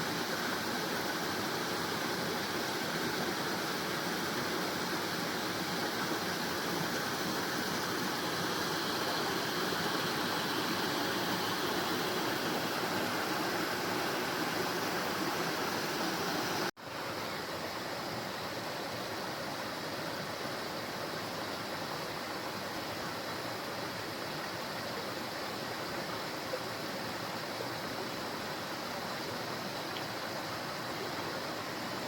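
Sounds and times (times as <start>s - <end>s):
waterfall rushing: 0.0s - 16.7s.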